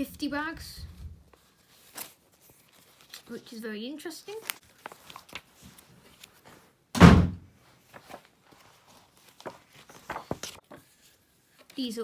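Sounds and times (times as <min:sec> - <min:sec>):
heavy dull thump: 0:07.0 - 0:07.4.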